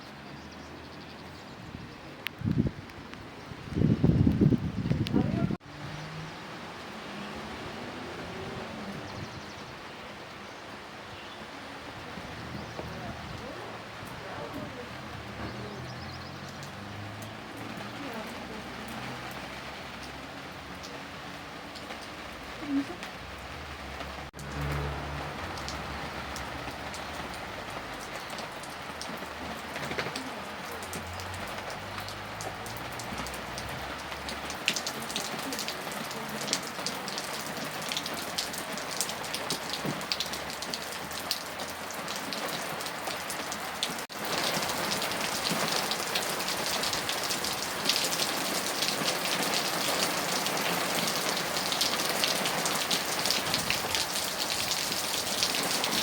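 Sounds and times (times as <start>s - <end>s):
rain on a hard surface: 0.0s - 56.0s.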